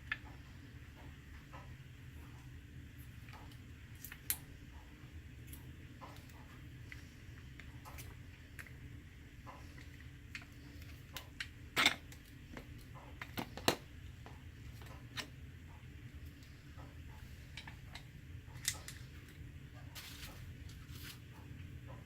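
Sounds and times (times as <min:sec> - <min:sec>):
low steady hum: 0:00.0 - 0:22.0
packaging being handled: 0:20.0 - 0:21.3.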